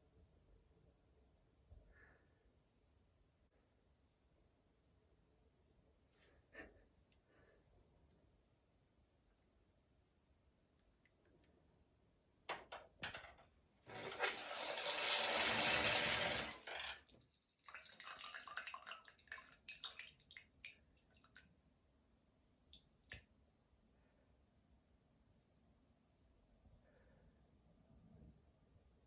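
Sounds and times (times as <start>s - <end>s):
shower water gushing: 13.9s - 17.1s
water splashing and trickling: 13.9s - 21.5s.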